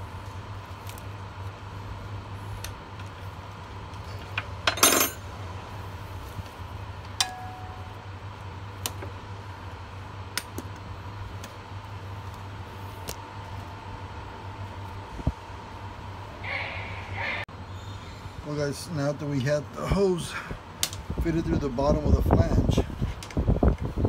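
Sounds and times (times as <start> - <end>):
low hum: 0.0 - 18.8
metal tools clinking: 4.7 - 5.2.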